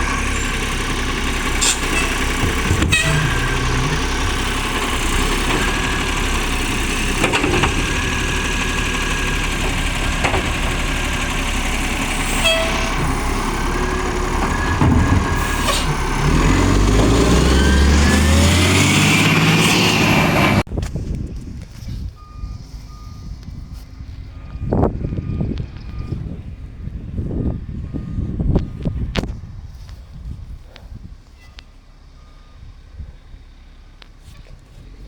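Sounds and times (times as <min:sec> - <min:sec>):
truck diesel engine revving: 0:00.0 - 0:20.7.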